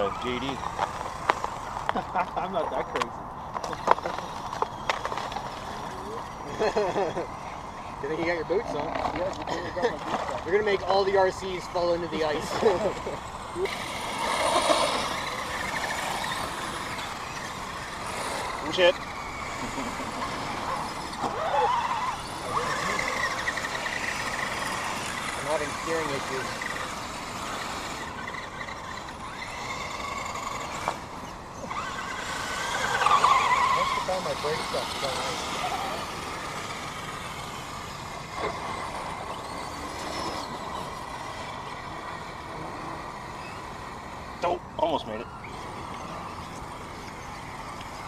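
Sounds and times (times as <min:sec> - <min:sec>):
small electric motor whine: 0:00.0 - 0:48.0.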